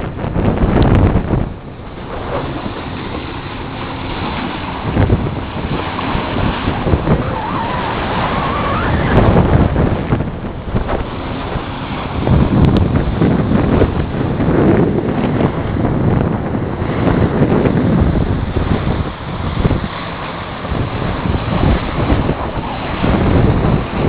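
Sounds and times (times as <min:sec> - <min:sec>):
water rushing along boat hull: 0:00.0 - 0:24.0
wind buffeting microphone: 0:00.0 - 0:24.0
wavering whistle: 0:06.9 - 0:09.4.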